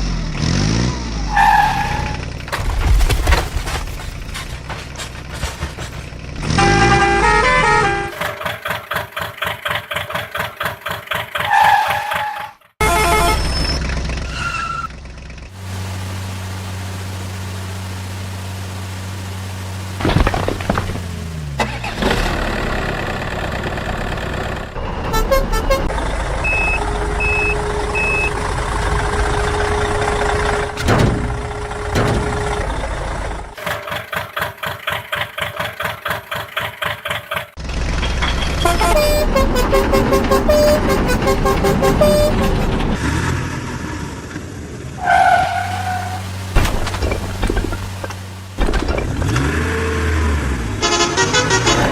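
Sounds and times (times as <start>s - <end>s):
engine running: 14.9s - 36.8s, 45.6s - 51.9s.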